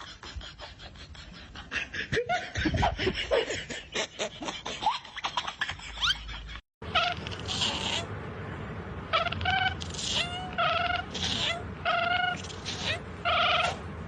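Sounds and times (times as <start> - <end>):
cat meowing: 9.2 - 13.8.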